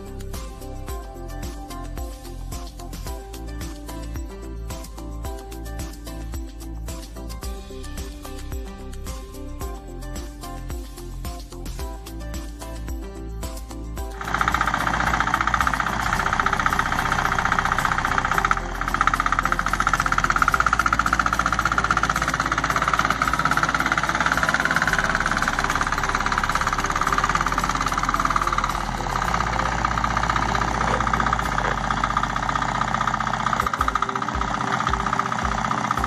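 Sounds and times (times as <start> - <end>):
tractor engine running: 14.0 - 36.0.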